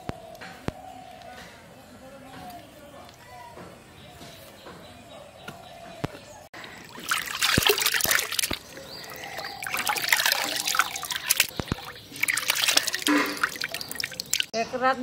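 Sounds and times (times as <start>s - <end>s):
water splashing and trickling: 6.5s - 14.6s.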